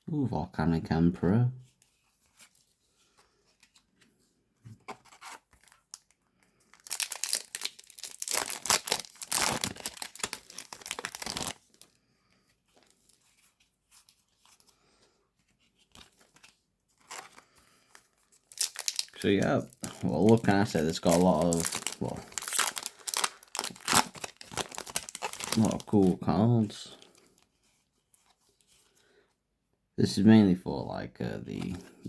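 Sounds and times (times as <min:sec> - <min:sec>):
faint wrapper rustles: 0:04.8 - 0:29.2
foil wrapper tearing and crinkling: 0:05.6 - 0:11.9, 0:17.0 - 0:17.5, 0:18.4 - 0:26.2.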